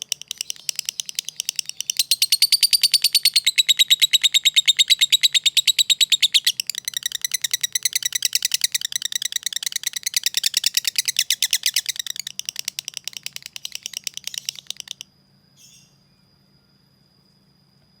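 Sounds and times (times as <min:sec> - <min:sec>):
lovebird chattering chirps: 0:00.0 - 0:15.0.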